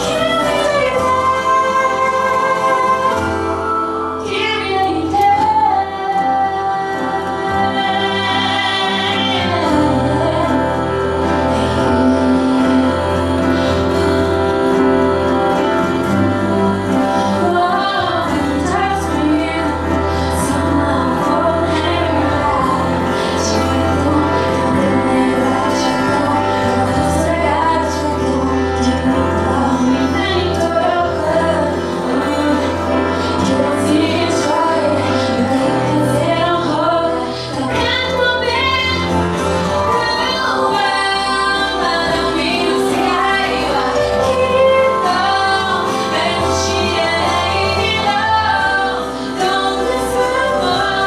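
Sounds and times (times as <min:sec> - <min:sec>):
instrumental backing with bass: 0:00.0 - 0:51.0
woman singing pop song: 0:00.0 - 0:51.0.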